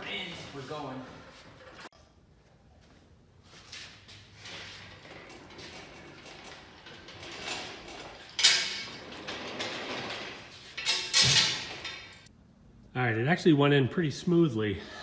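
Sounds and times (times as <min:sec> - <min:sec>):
metal clunks and scraping: 0:04.4 - 0:12.3.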